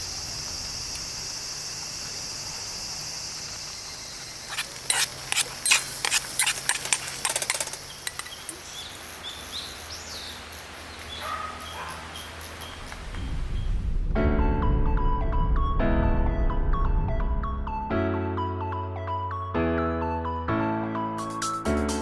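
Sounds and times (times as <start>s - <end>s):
insects trilling: 0.0s - 13.1s.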